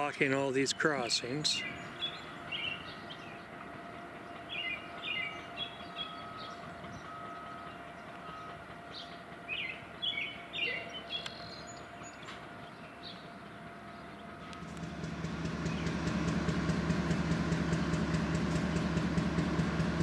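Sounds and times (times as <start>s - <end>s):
background hum: 0.0s - 20.0s
small bird chirping: 4.4s - 13.2s.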